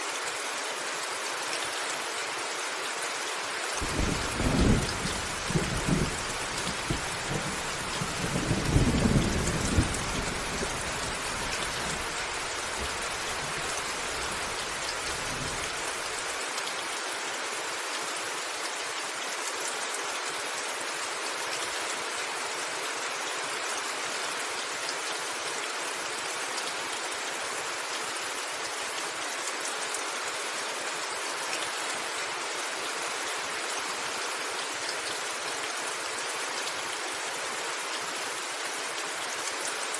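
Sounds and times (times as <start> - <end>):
steady rain: 0.0 - 39.9
thunder rumbling: 3.8 - 11.7.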